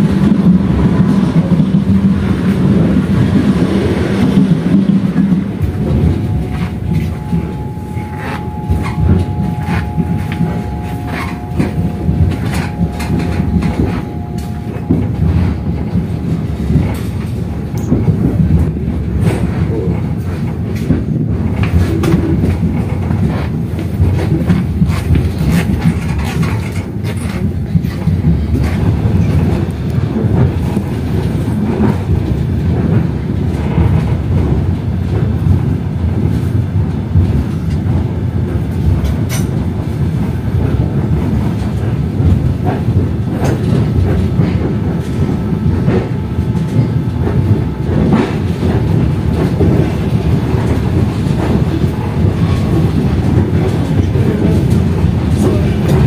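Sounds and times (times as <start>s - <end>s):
train rumbling: 0.0s - 56.0s
wheels clicking over rail joints: 0.2s - 56.0s
two-note tone: 5.3s - 17.0s.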